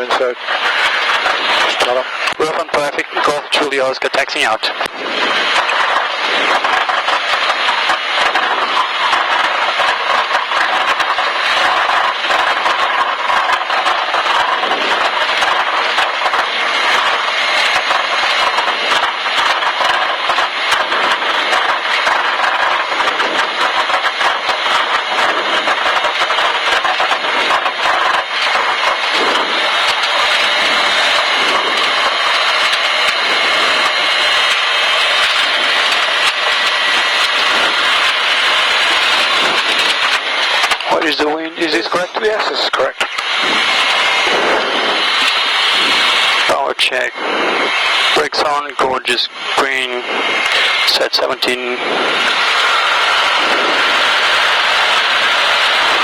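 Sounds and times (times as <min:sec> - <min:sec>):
small plane engine and propeller: 0:00.0 - 0:56.0.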